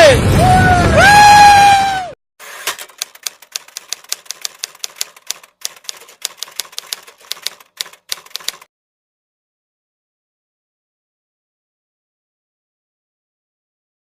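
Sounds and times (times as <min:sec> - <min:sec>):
typewriter key clicks: 0:02.7 - 0:08.7.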